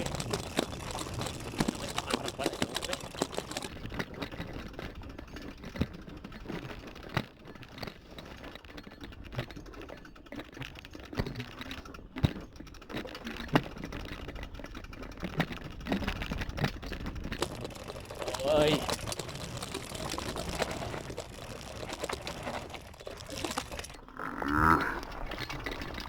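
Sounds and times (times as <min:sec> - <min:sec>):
tyres rumbling on trail: 0:00.0 - 0:07.1, 0:11.7 - 0:26.0
bike clicks and rattles: 0:00.0 - 0:26.0
bike knocking over bumps: 0:14.8 - 0:26.0.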